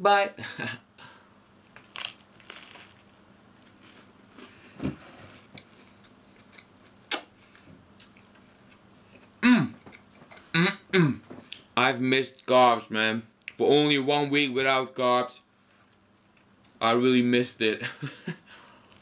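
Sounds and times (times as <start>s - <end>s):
crunch of toasted bread: 1.6s - 4.6s
quiet chewing: 3.6s - 10.5s
sharp mouth sounds: 7.1s - 7.3s.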